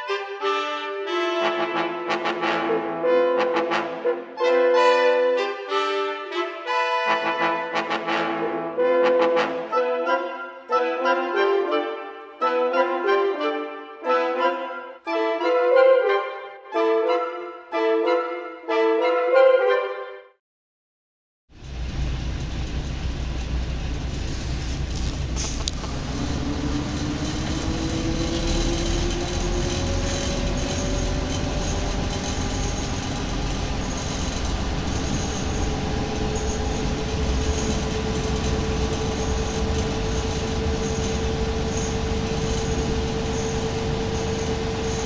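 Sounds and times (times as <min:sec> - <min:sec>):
train rumbling: 0:21.5 - 0:45.0
train whine: 0:21.6 - 0:45.0.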